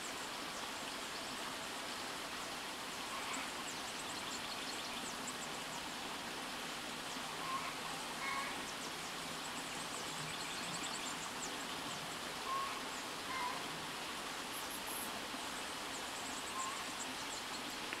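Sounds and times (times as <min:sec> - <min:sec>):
short clear bird calls: 0:07.4 - 0:08.6, 0:12.4 - 0:13.6.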